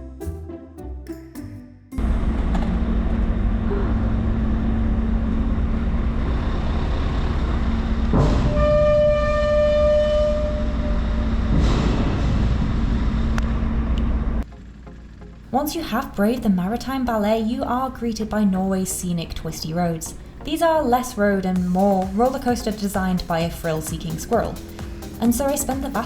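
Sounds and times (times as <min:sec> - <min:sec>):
large engine droning: 0:02.0 - 0:26.0
horn sounding: 0:08.4 - 0:11.4.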